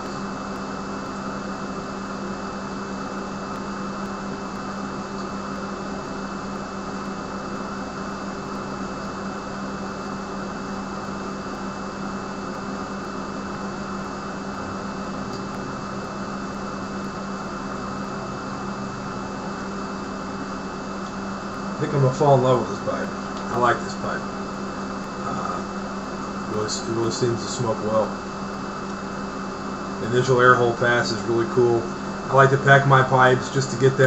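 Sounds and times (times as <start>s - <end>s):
machine hum with hiss: 0.0s - 34.0s.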